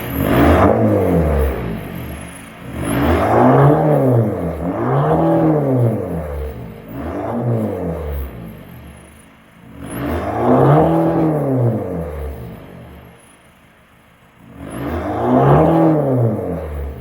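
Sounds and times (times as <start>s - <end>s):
diesel engine revving: 0.0s - 13.4s, 14.2s - 17.0s.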